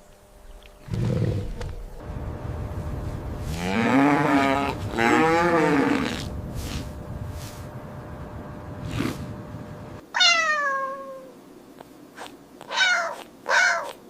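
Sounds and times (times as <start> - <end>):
cow mooing: 3.4 - 6.9.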